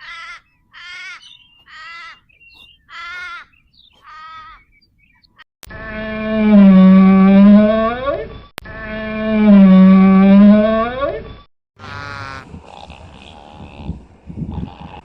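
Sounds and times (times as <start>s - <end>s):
bird harsh calls: 0.0s - 5.4s
low animal call: 5.8s - 11.1s, 11.8s - 15.0s.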